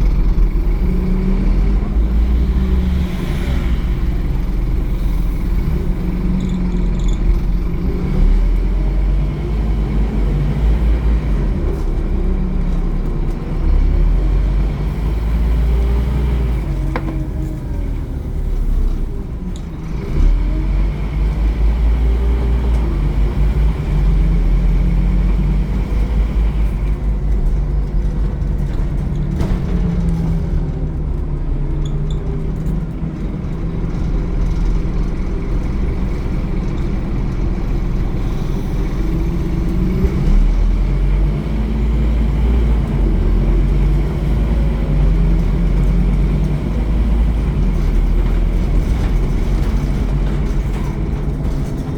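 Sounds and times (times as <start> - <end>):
low rumble: 0.0 - 15.0
bus diesel engine accelerating: 0.0 - 51.9.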